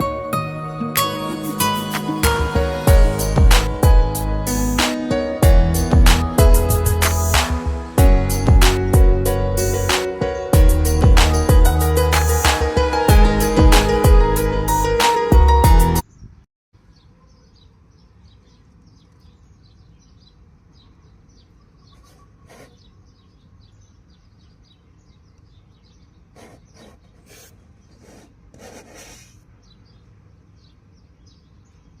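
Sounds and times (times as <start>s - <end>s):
music: 0.0s - 16.0s
rubbing or rustling noises: 22.0s - 22.9s, 26.4s - 29.4s.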